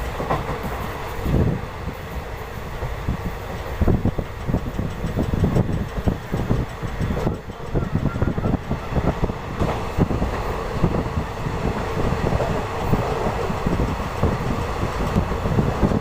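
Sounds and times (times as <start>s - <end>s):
train wheels rumbling on rails: 0.0s - 16.0s
coach rattling and clattering: 3.9s - 8.5s.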